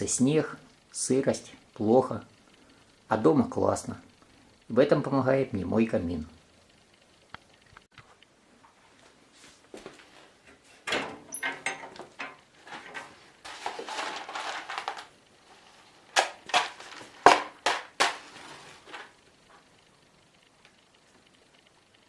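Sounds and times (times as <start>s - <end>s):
rustling: 7.9s - 21.7s
wood and metal clatter: 10.5s - 15.1s.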